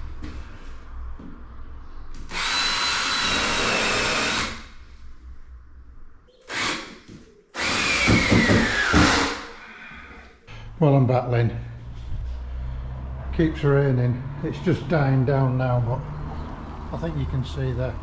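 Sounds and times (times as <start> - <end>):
power drill whining: 2.3 - 4.7, 6.5 - 7.0, 7.6 - 9.6.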